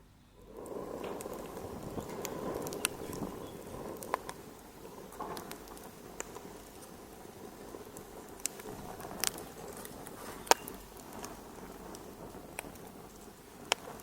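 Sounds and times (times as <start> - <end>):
wood fire crackling: 0.0 - 14.0
sharp pops from fire: 0.4 - 14.0.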